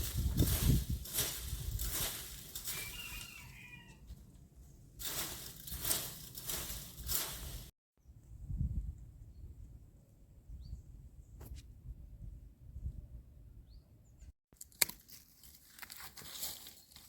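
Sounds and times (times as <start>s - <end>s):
footsteps crunching through dry leaves: 0.0s - 4.0s, 5.0s - 7.7s, 15.0s - 17.0s.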